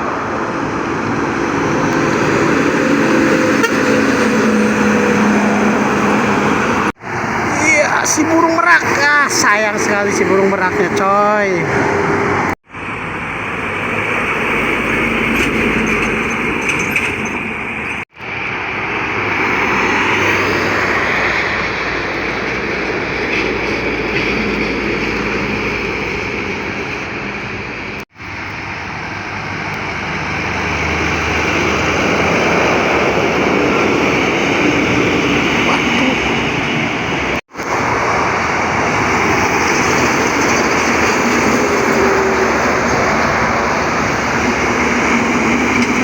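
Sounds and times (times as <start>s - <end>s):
heavy trucks passing: 0.0s - 46.0s.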